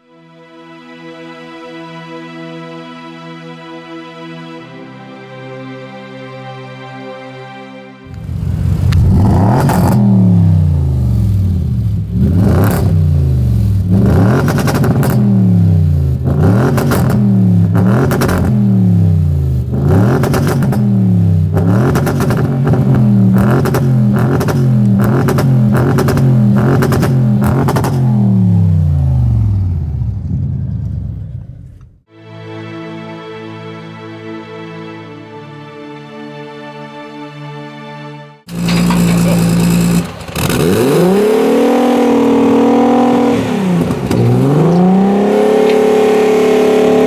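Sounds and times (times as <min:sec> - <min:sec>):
exhaust cracks: 0:08.1 - 0:15.4, 0:16.1 - 0:18.6, 0:19.6 - 0:32.0, 0:38.5 - 0:45.9
car engine revving: 0:08.1 - 0:32.0, 0:38.5 - 0:47.0.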